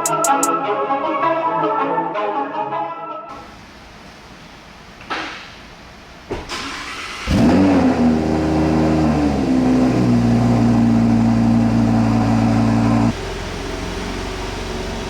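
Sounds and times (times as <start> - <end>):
car engine starting and idling: 5.7 - 15.0.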